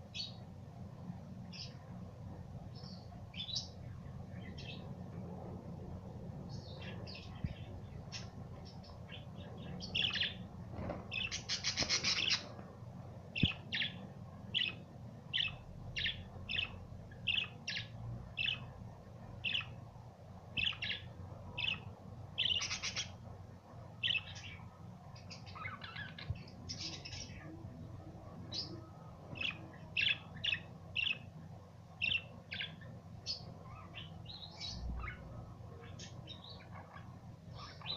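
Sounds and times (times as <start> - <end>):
budgies chirping: 6.5 - 10.5, 11.1 - 12.6, 13.4 - 18.7, 19.4 - 19.8, 20.6 - 23.2, 24.0 - 27.5, 28.5 - 31.3, 32.0 - 37.9.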